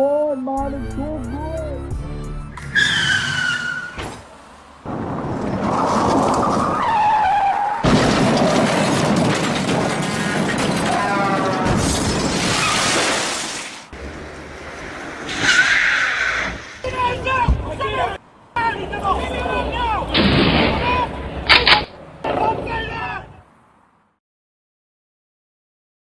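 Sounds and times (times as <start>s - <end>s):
tyres screeching: 2.3s - 23.4s
loud car crash: 2.6s - 17.8s, 19.8s - 23.2s
glass shattering: 7.8s - 13.9s.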